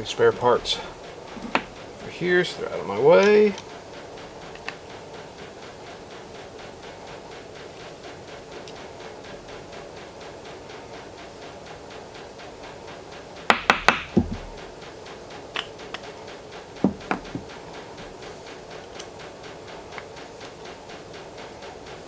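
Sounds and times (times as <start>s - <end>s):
steady background hum: 0.0s - 22.0s
metal tools knocking on workbench: 13.5s - 14.7s, 16.8s - 17.5s.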